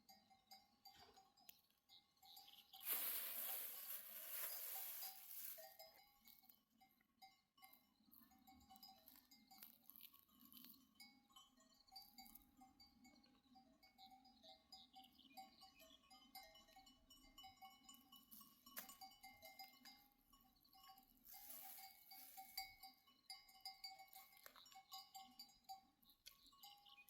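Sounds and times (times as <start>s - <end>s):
animal bells tinkling: 0.0s - 27.0s
short hiss: 2.9s - 5.5s.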